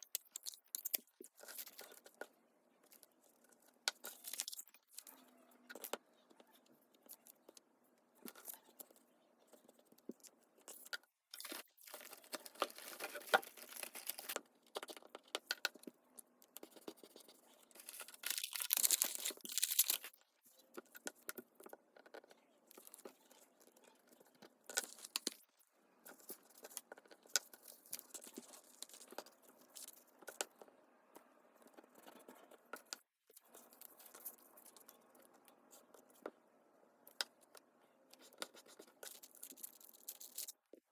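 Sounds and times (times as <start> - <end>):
paper rustling and crinkling: 11.4 - 14.4, 17.6 - 20.2.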